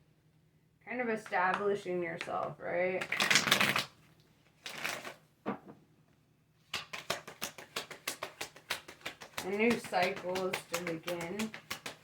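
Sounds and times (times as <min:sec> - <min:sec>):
cards clicking while shuffled: 0:03.0 - 0:03.9, 0:06.7 - 0:12.0
cards rustling: 0:06.8 - 0:12.0.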